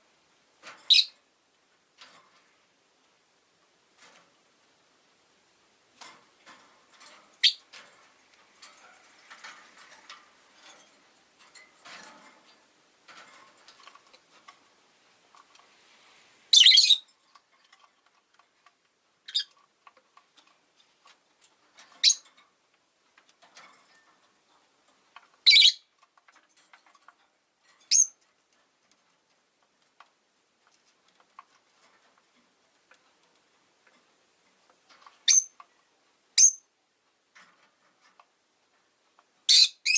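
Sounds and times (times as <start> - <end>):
lovebirds chirping: 0.9 - 1.2, 7.4 - 7.6, 16.5 - 17.1, 25.4 - 25.9, 27.9 - 28.2.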